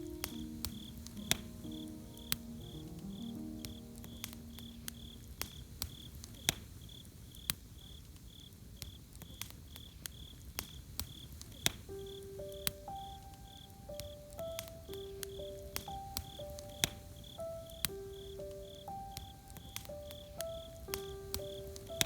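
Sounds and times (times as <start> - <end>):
soft background music: 0.0 - 6.4, 11.7 - 22.0
campfire crackling and popping: 0.0 - 22.0
cricket chirping: 0.0 - 22.0.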